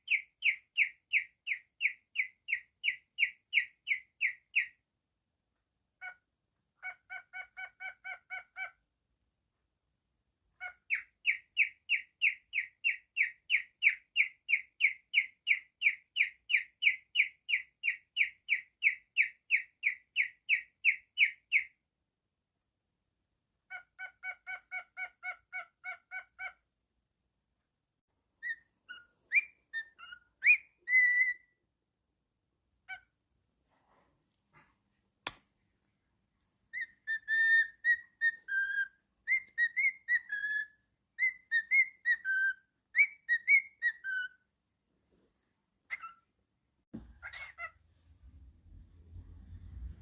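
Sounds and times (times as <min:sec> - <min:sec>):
bird whistling: 0:28.4 - 0:31.6, 0:36.8 - 0:44.4
sharp click: 0:35.2 - 0:35.5.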